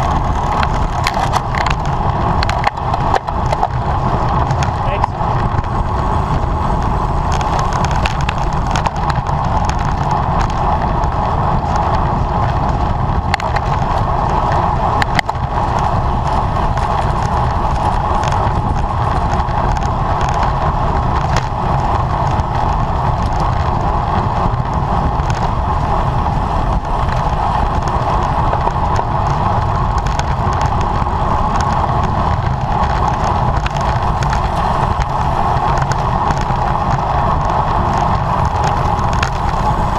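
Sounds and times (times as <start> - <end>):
bicycle road noise: 0.0 - 39.9
wind rush: 0.0 - 39.9.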